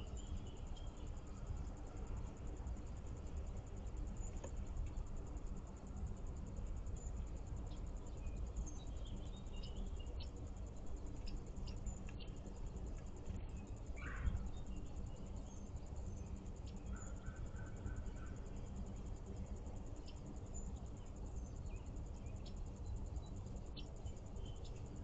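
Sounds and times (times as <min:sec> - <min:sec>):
small birds chirping: 0:07.0 - 0:18.7, 0:19.9 - 0:25.0.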